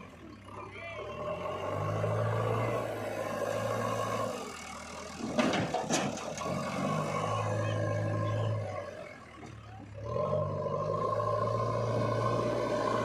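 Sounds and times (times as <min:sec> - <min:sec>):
heavy machinery diesel engine: 0:00.0 - 0:13.0
loud clattering knocks: 0:05.2 - 0:06.4.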